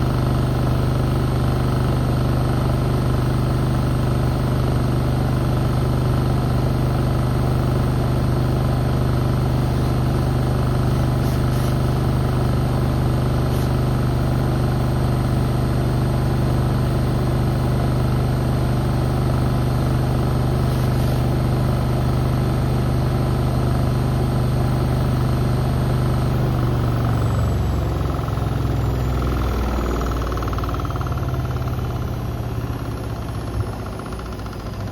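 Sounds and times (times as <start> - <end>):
washing machine spinning: 0.0 - 34.9.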